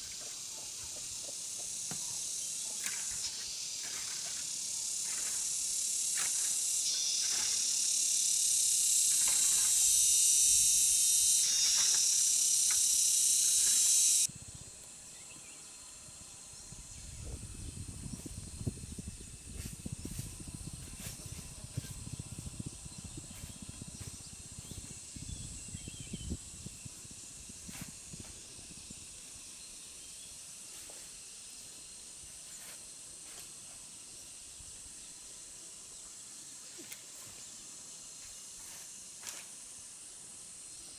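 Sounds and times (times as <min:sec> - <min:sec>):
loud steady hiss: 0:00.0 - 0:40.9.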